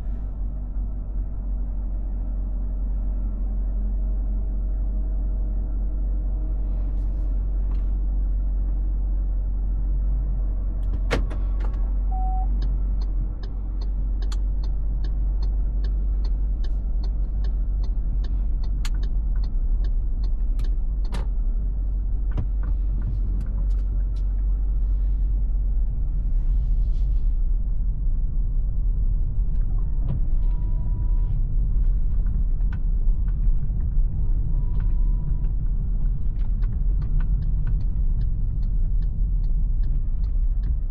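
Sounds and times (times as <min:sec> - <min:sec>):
road and drivetrain rumble: 0:00.0 - 0:40.9.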